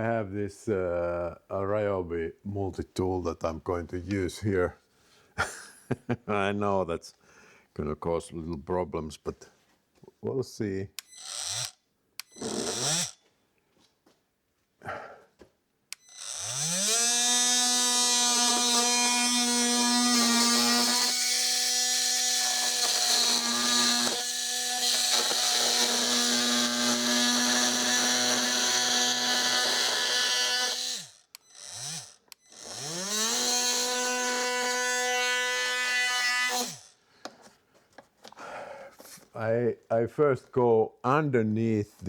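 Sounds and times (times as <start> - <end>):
multi-tool buzzing cutting plastic: 11.0 - 13.2, 15.9 - 37.0.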